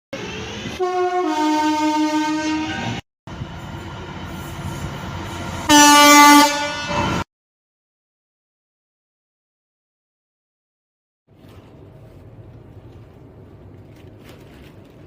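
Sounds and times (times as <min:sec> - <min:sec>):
train rumbling: 0:00.1 - 0:07.2, 0:11.3 - 0:15.0
two-tone train horn: 0:00.7 - 0:03.0, 0:05.6 - 0:07.3.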